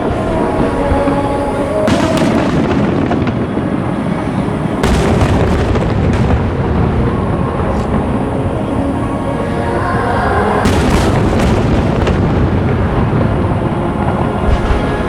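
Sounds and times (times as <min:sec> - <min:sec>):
firework shells booming: 0:01.8 - 0:08.0.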